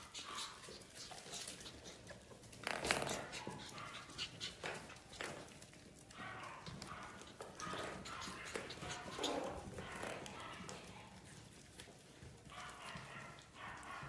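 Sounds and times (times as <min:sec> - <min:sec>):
puppies scuffling: 0:00.0 - 0:14.0
puppies whimpering: 0:06.4 - 0:10.8.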